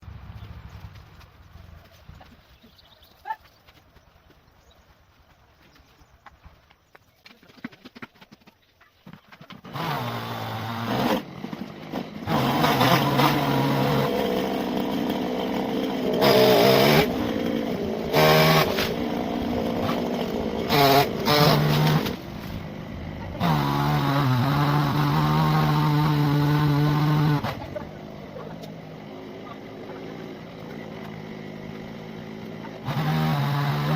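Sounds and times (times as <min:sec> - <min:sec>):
chainsaw cutting into tree: 0:09.4 - 0:33.9.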